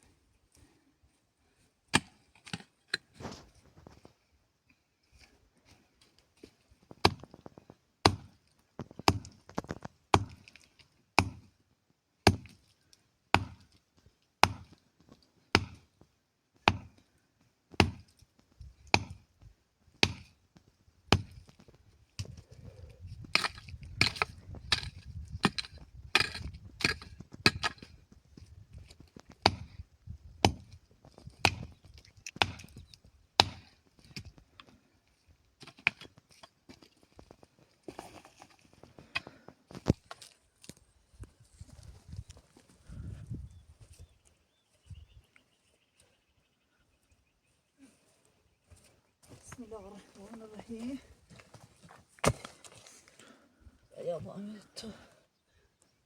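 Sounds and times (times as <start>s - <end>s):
wood being chopped: 2.0s - 3.0s, 6.9s - 7.4s, 8.0s - 10.5s, 11.2s - 11.5s, 12.3s - 12.6s, 13.4s - 13.7s, 14.4s - 14.8s, 15.5s - 15.9s, 16.6s - 17.0s, 17.7s - 18.1s, 18.9s - 19.2s, 20.0s - 20.4s, 21.1s - 21.5s, 23.2s - 28.0s, 29.3s - 29.8s, 30.4s - 30.7s, 31.3s - 32.8s, 33.4s - 34.3s, 52.2s - 52.8s.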